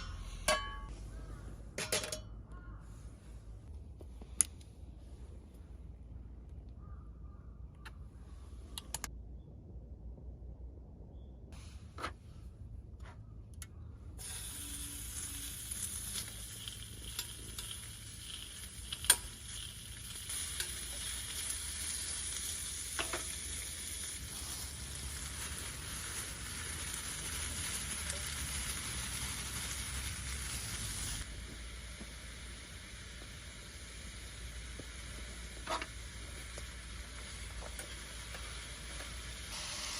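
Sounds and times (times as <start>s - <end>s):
food sizzling in a pan: 14.2s - 39.9s.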